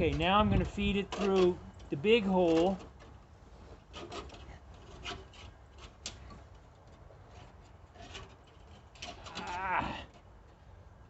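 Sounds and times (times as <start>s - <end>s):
wire scraping through sheet metal: 0.8s - 3.2s, 3.8s - 6.4s, 7.2s - 10.2s.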